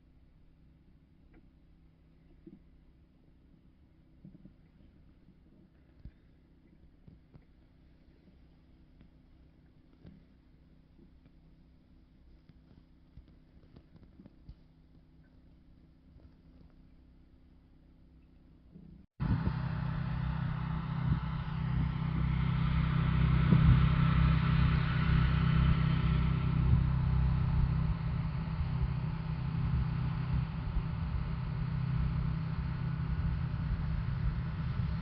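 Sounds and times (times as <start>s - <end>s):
engine running steadily: 19.2s - 35.0s.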